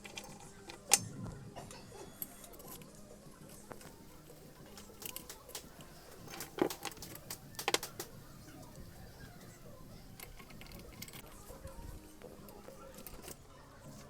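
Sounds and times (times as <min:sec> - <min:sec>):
metal tools clinking: 0:04.3 - 0:07.8.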